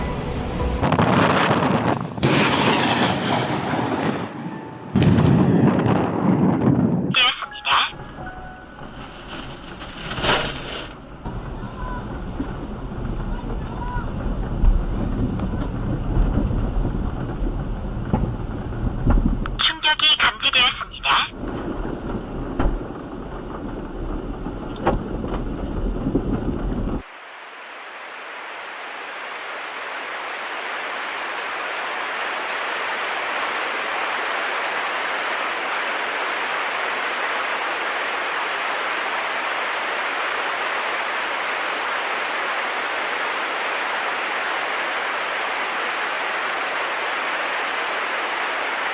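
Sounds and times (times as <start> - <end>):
low rumble: 0.0 - 1.8, 8.0 - 19.6
steady static-like hiss: 0.0 - 2.3, 7.1 - 21.4, 27.0 - 48.9.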